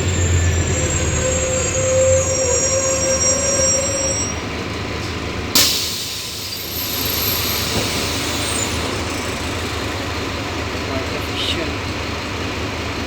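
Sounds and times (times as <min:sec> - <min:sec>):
bus brake squeal: 0:00.0 - 0:04.5, 0:05.6 - 0:10.0
diesel engine running: 0:00.0 - 0:13.0
compressed air hiss: 0:05.6 - 0:09.7.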